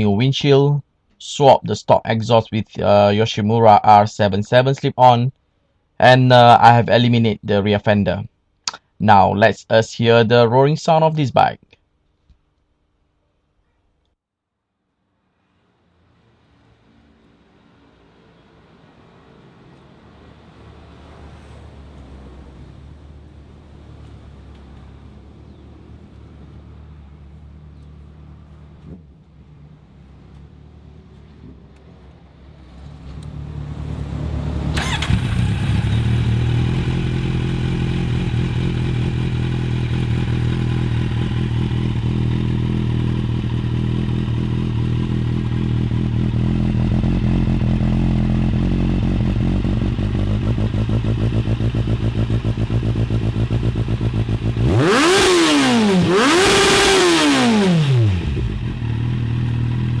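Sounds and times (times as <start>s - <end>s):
motorcycle engine revving: 32.7s - 60.0s
motorcycle engine idling: 34.8s - 55.2s, 58.1s - 60.0s.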